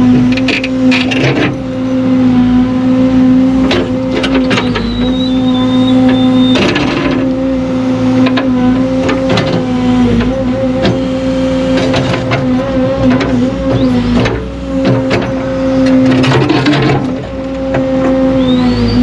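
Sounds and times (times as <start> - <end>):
construction machine engine running: 0.0 - 19.0
sharp knocks and clanks: 11.8 - 18.2.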